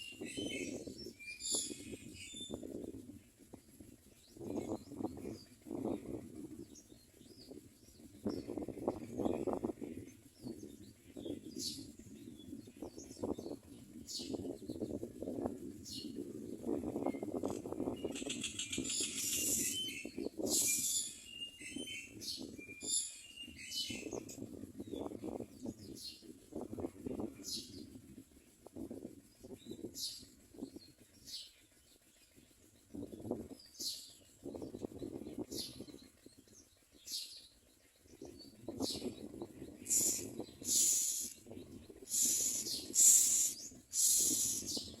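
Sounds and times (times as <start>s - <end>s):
birds giving harsh hissing calls: 0.0s - 2.7s, 4.0s - 15.1s, 15.8s - 32.0s, 33.6s - 45.0s
myna bird calls: 17.4s - 25.1s, 35.4s - 45.0s.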